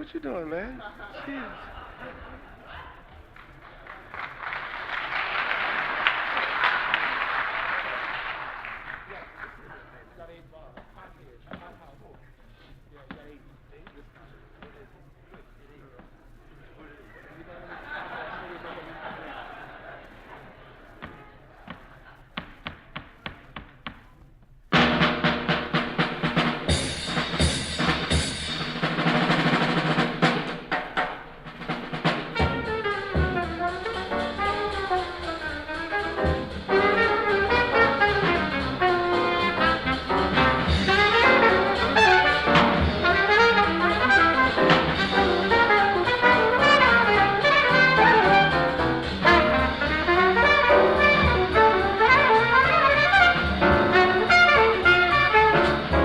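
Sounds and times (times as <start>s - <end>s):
jazz drum kit and cymbals: 20.9s - 56.0s
trumpet and saxophone melody: 24.7s - 30.5s, 31.6s - 56.0s.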